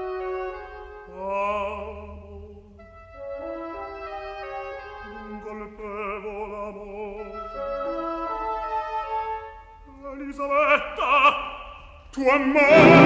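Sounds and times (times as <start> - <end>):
orchestra playing slow chords: 12.7 - 13.0.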